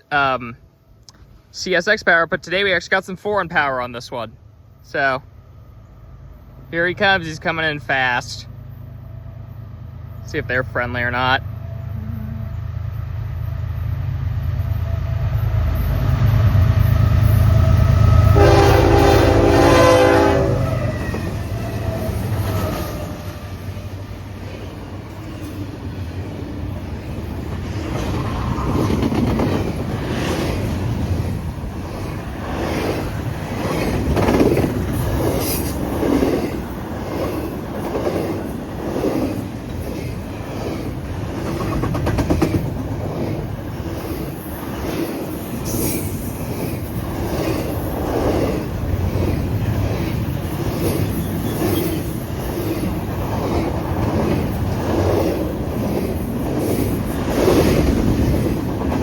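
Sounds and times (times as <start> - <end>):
diesel locomotive rumble: 1.0 - 59.0
train horn blast: 17.5 - 21.4
train wheels clickety-clack: 26.7 - 59.0.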